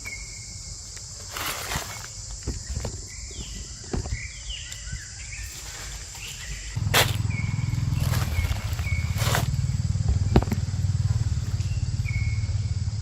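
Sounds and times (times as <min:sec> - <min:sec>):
insect drone: 0:00.0 - 0:13.0
low motor hum: 0:06.8 - 0:13.0.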